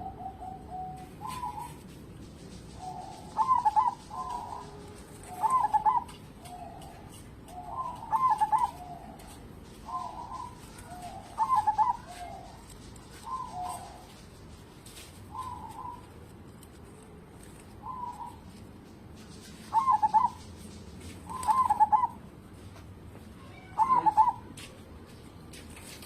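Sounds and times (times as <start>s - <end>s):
dove cooing: 0.0s - 14.2s, 15.2s - 16.3s, 17.6s - 18.6s, 19.6s - 22.2s, 23.6s - 24.5s.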